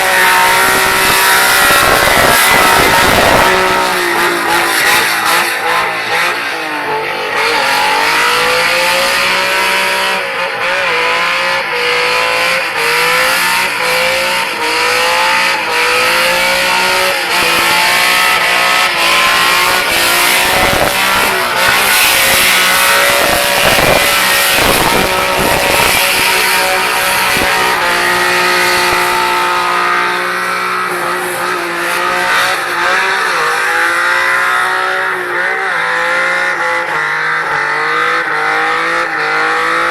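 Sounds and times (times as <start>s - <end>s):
car engine revving high: 0.0s - 39.9s.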